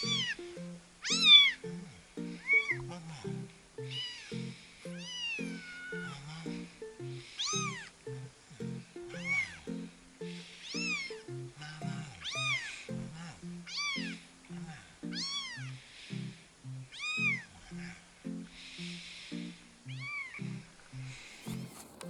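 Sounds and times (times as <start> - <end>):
kitten meowing: 0.0 - 0.4, 1.0 - 1.6, 4.9 - 6.2, 7.4 - 7.9, 10.6 - 11.2, 13.7 - 14.2, 15.1 - 15.7, 17.0 - 17.5, 20.0 - 20.4
light background music: 0.0 - 22.0.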